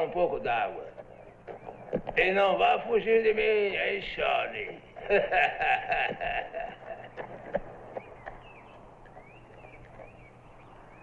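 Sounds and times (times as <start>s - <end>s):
faint bird chirps: 0.9s - 2.2s, 7.0s - 11.0s.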